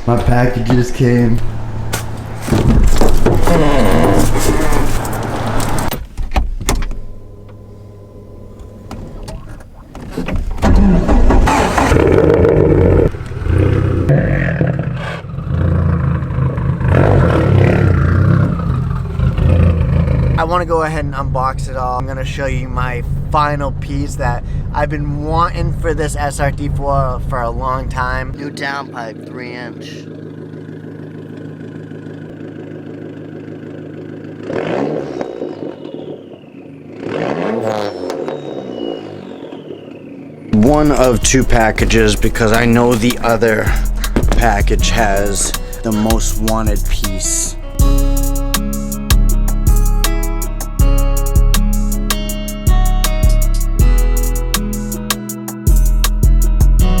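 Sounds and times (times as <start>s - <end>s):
car engine deep rumble: 0.0s - 55.0s
thin falling whistle: 35.2s - 36.9s, 37.8s - 40.5s.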